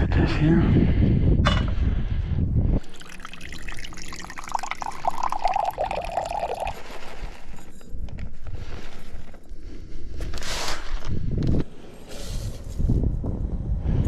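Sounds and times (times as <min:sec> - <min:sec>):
water pouring into pot: 0:02.8 - 0:07.1.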